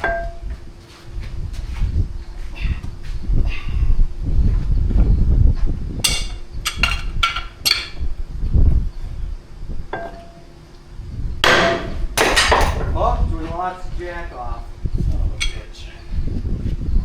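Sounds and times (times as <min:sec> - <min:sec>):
hammer striking steel hub: 0:06.0 - 0:08.0, 0:11.4 - 0:12.8, 0:15.4 - 0:15.8.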